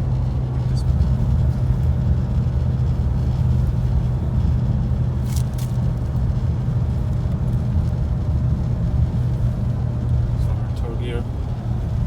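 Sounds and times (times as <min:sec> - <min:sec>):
diesel engine drone: 0:00.0 - 0:12.0
road noise: 0:00.0 - 0:12.0.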